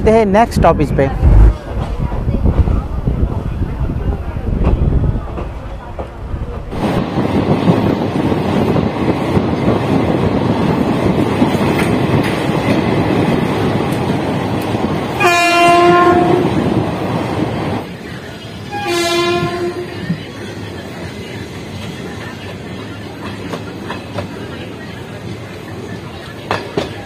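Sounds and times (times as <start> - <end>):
train rumble inside carriage: 0.0 - 27.0
train horn: 15.2 - 16.6, 18.7 - 20.0.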